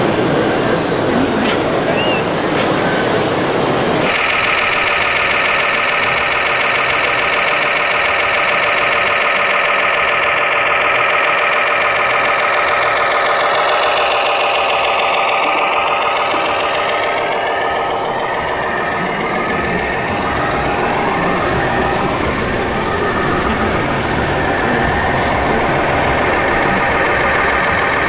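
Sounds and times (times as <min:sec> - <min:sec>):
toy construction machine motor: 0:12.7 - 0:28.0.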